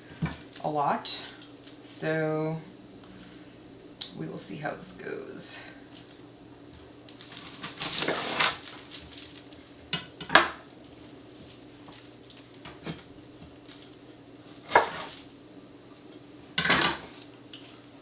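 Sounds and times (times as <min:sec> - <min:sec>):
onion scraping and rustling: 0:00.0 - 0:02.0, 0:05.8 - 0:15.3, 0:15.9 - 0:18.0.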